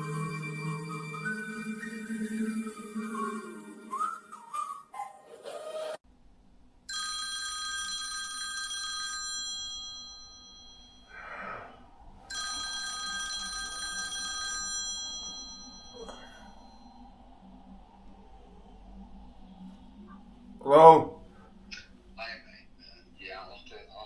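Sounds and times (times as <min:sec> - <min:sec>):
phone ringtone ringing: 0:06.9 - 0:11.1, 0:12.3 - 0:16.2.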